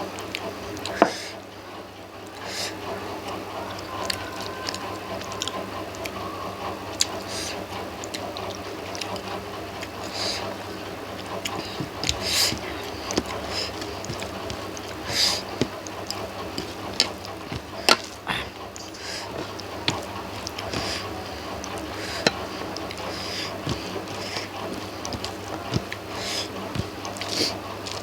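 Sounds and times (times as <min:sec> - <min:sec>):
steady low hum: 0:00.0 - 0:28.0
chewing and lip smacks: 0:03.2 - 0:28.0.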